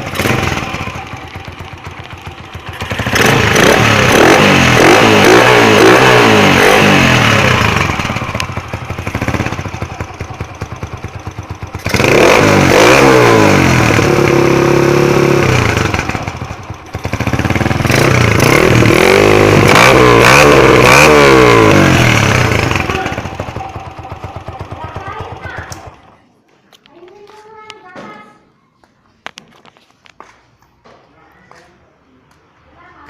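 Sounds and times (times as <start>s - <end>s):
motorcycle engine revving: 0.0s - 26.2s.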